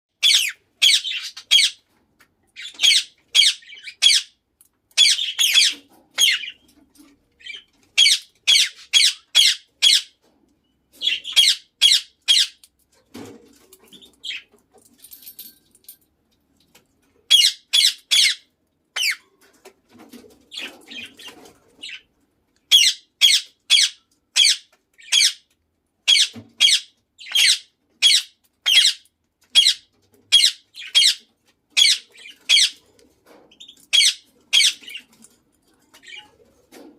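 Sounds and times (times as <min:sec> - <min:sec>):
parakeet squawking: 0:00.2 - 0:01.8, 0:02.6 - 0:04.4, 0:05.0 - 0:06.6, 0:07.4 - 0:10.2, 0:11.0 - 0:12.6, 0:17.3 - 0:19.2, 0:22.7 - 0:25.4, 0:26.1 - 0:32.8, 0:33.6 - 0:35.1.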